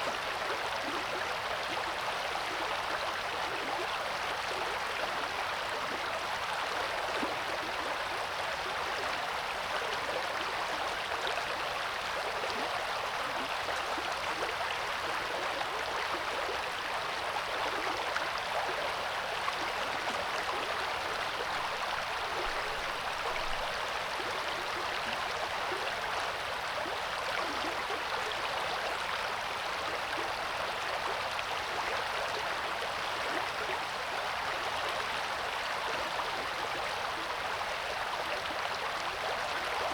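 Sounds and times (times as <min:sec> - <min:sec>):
river flowing: 0:12.0 - 0:39.9.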